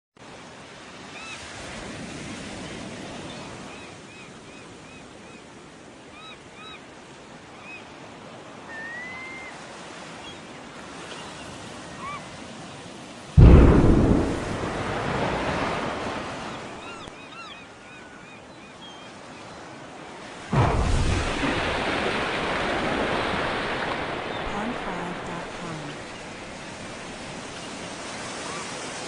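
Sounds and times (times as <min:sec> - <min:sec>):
sea surf washing: 0:08.0 - 0:17.9, 0:19.2 - 0:29.0
sudden loud rush of noise: 0:13.4 - 0:16.8.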